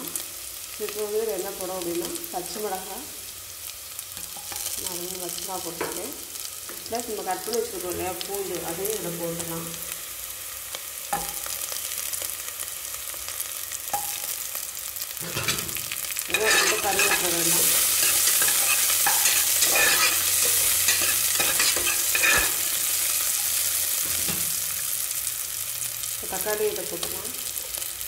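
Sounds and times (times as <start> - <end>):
onions sizzling in oil: 0.0 - 28.0
spoon scraping metal pot: 15.2 - 22.8.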